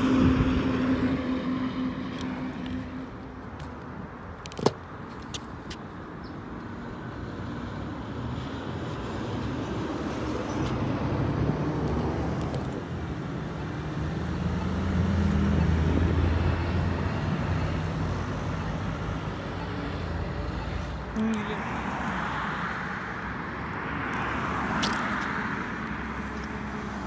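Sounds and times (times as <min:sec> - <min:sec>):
road traffic: 0:00.0 - 0:27.0
truck engine passing: 0:09.8 - 0:22.0.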